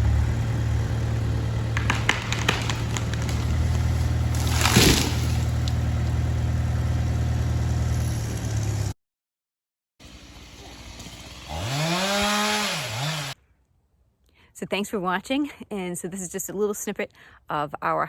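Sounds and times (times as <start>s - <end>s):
diesel engine running: 0.0s - 9.0s
sharp cracks and snaps: 1.8s - 5.8s.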